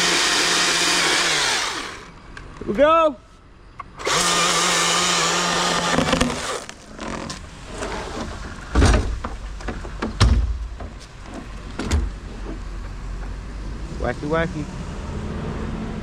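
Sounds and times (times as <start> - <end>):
chainsaw cutting: 0.0 - 2.2, 4.0 - 7.3
heavy wooden thuds: 8.7 - 13.4.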